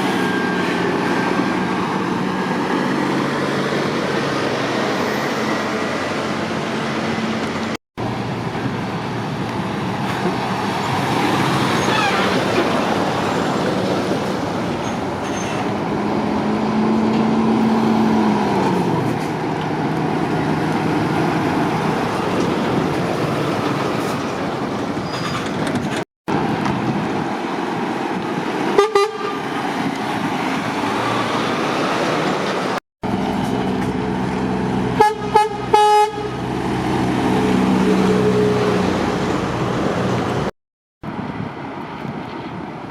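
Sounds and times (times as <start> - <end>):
heavy lorry traffic: 0.0 - 42.9
truck horn toots: 28.8 - 29.4, 35.0 - 36.4.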